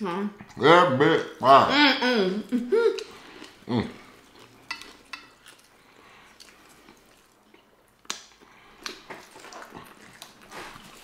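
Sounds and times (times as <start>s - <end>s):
chewing and wet mouth smacks: 3.0s - 11.0s.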